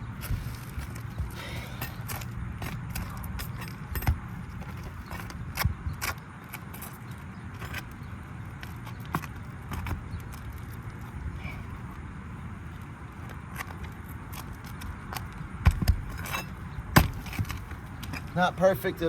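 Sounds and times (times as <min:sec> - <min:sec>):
pry bar scraping shingles: 0:13.3 - 0:18.4.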